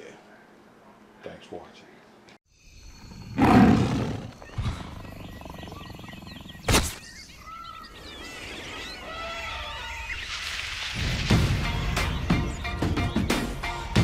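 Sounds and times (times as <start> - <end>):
bird-like chirps and whistles: 2.5 - 13.4.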